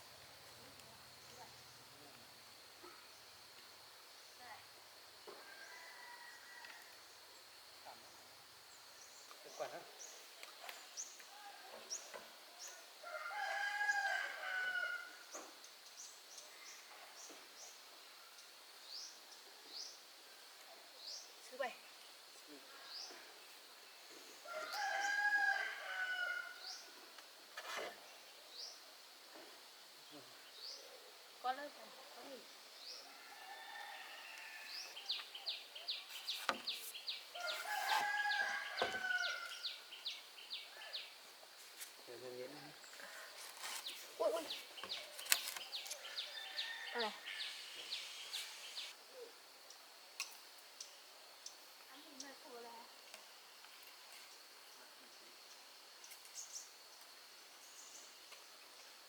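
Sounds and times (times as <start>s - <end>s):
rooster crowing: 5.4s - 6.9s, 13.0s - 15.2s, 24.5s - 26.7s, 33.1s - 35.0s, 37.4s - 39.9s, 46.1s - 48.8s.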